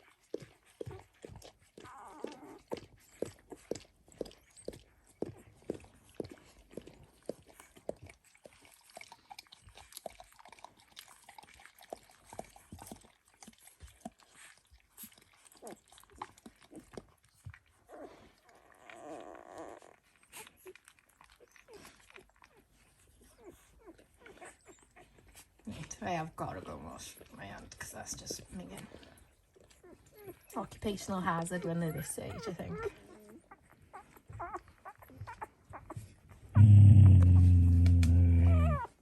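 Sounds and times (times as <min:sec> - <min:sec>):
puppies wet clicking and smacking: 0:00.0 - 0:39.0
longer muffled sound: 0:36.6 - 0:38.8.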